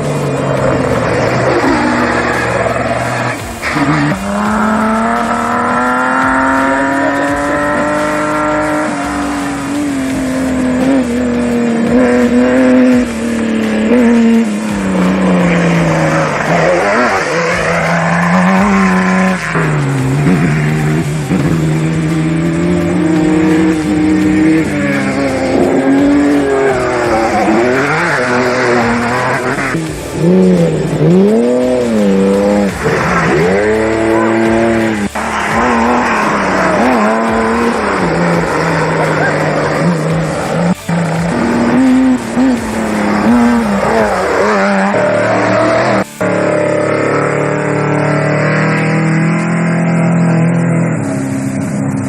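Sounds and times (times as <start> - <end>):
race vehicle engine revving: 0.0 - 52.0.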